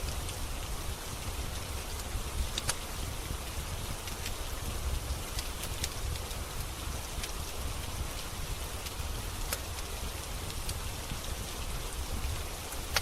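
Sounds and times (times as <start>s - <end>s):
steady rain: 0.0s - 13.0s
wood fire crackling pops: 1.8s - 4.4s, 5.2s - 7.9s, 8.5s - 11.2s, 12.1s - 13.0s.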